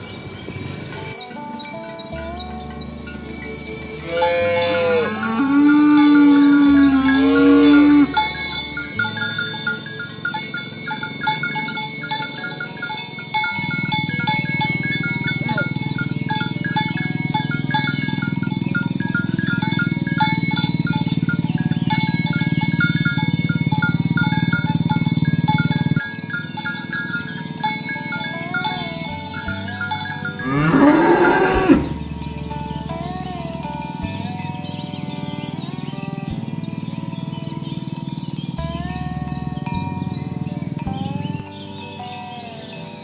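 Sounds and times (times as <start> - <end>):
cow mooing: 4.0 - 8.9, 28.4 - 32.1.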